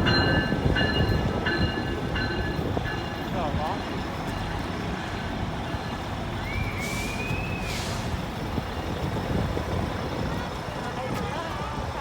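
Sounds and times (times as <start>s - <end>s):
heavy vehicle engine rumbling: 0.0s - 12.0s
high squeal with air hiss: 6.5s - 8.2s.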